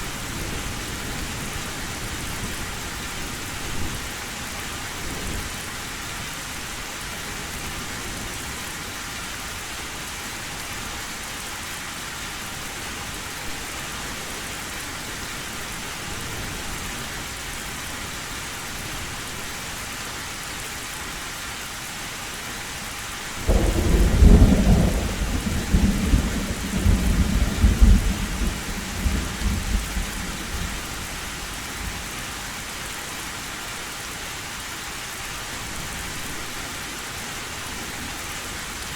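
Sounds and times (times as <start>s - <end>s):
heavy rain on a metal roof: 0.0s - 38.9s
thunder rumbling: 23.5s - 32.0s.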